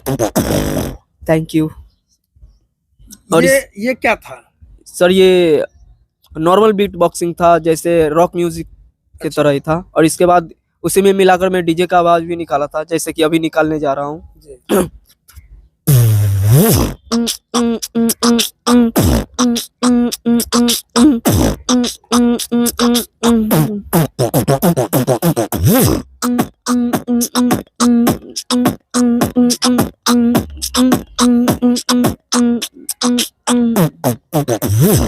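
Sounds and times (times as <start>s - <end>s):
beatboxing kick and snare beats: 0.0s - 3.5s, 5.8s - 10.4s, 14.6s - 35.0s
swooping vocal glides: 16.4s - 35.0s.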